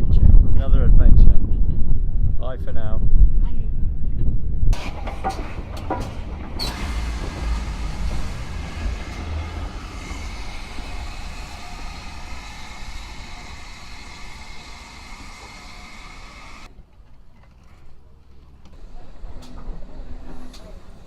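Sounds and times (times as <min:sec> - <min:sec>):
vehicle running noise: 0:04.8 - 0:16.7.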